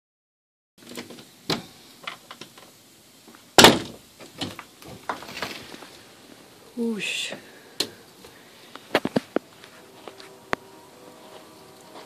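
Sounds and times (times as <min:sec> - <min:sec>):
loud thump: 0:03.6 - 0:04.0
door opening clicks and knocks: 0:03.6 - 0:05.2.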